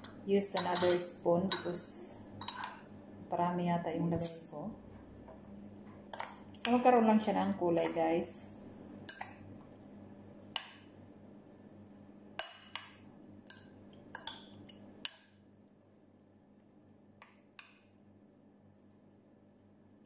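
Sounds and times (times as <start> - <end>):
metal spoon clinking glass bowl: 0.0 - 1.8, 2.4 - 2.8, 14.2 - 15.2.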